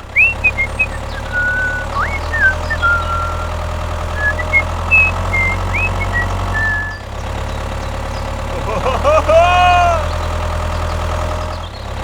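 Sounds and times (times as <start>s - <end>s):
low engine-like hum: 0.0s - 12.0s
short high whistled notes: 0.2s - 3.6s, 4.2s - 7.0s.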